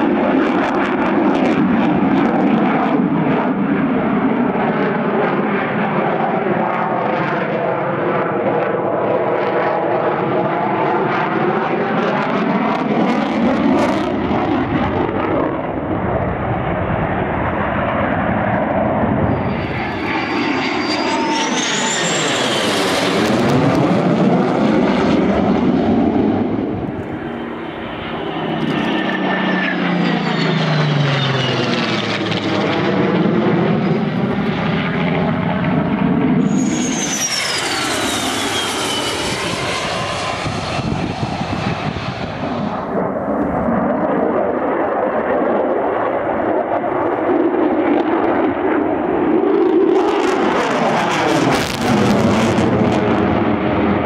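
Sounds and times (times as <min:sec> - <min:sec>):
aircraft flying past: 0:00.0 - 0:54.0
high engine whine: 0:11.5 - 0:54.0.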